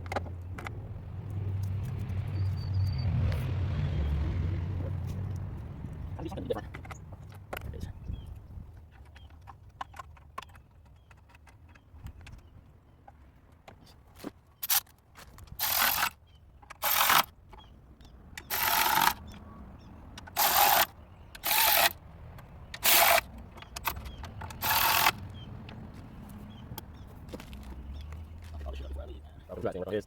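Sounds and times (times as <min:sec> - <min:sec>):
hand tool rasping: 0:15.6 - 0:17.3, 0:18.4 - 0:19.2, 0:20.2 - 0:22.0, 0:22.8 - 0:25.3.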